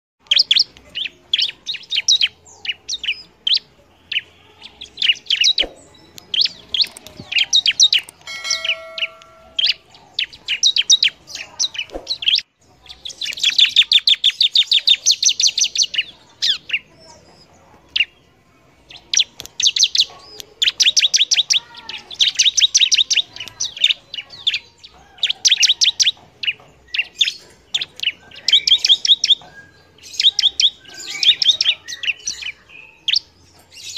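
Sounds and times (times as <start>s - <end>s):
bird chirping rapidly: 0.2s - 18.2s.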